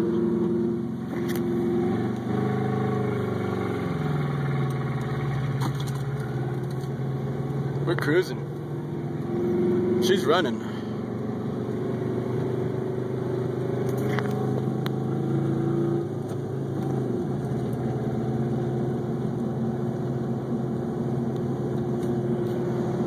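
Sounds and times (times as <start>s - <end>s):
car engine running inside cabin: 0.0s - 23.0s.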